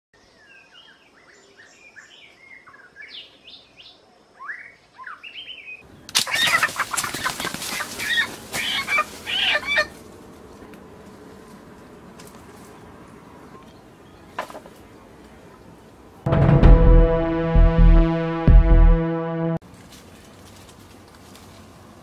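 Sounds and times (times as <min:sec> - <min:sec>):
birds whistling chirps: 0:00.4 - 0:06.1
rustling and crackling: 0:06.1 - 0:12.9, 0:19.6 - 0:22.0.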